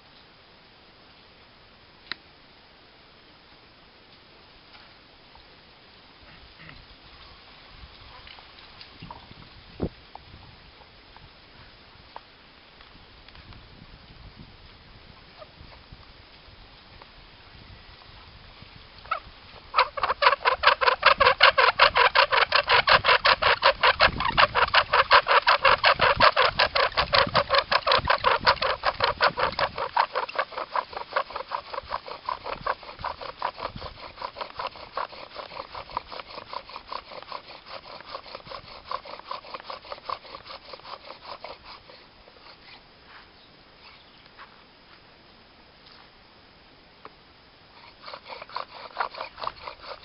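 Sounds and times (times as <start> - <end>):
wooden spindle grinding and squeaking: 19.0 - 42.8, 43.8 - 44.1, 47.8 - 50.0.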